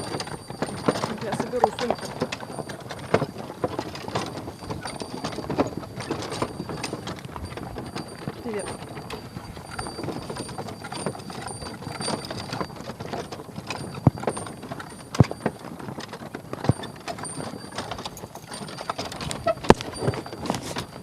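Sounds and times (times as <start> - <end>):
horse hooves clip-clopping: 0.0 - 21.0
wooden cart knocking and rattling: 0.0 - 21.0.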